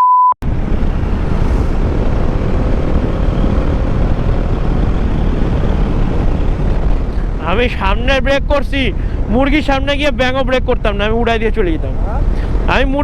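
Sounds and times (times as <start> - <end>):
motorcycle engine: 0.4 - 10.1
wind on microphone: 0.4 - 11.0
road noise: 0.4 - 13.0.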